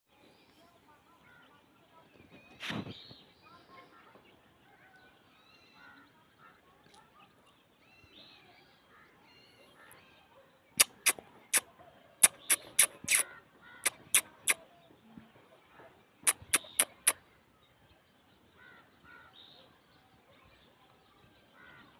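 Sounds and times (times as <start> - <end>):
faint short bird calls: 10.8 - 14.8, 16.2 - 17.2.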